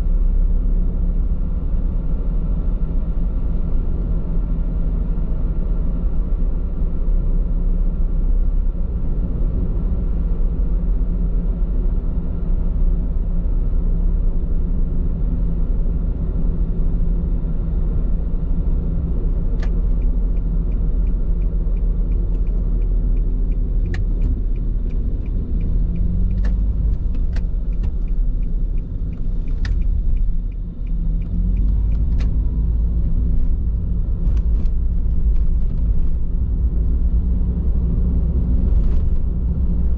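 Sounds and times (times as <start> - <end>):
road and tyre rumble in car: 0.0 - 39.9
sharp single clicks: 19.5 - 32.4
faint regular ticking: 19.6 - 32.3.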